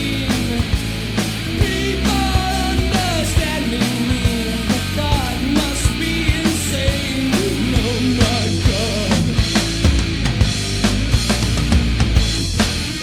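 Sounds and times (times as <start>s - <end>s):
rock band playing: 0.0s - 13.0s
drum hits: 0.4s - 13.0s.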